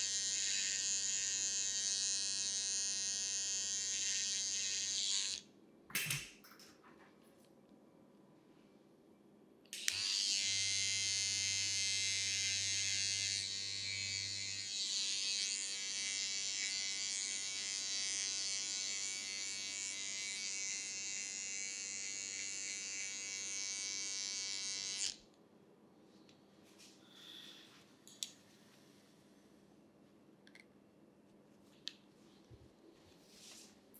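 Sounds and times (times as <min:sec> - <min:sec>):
electric hair clipper humming: 0:00.0 - 0:05.4, 0:09.8 - 0:25.2.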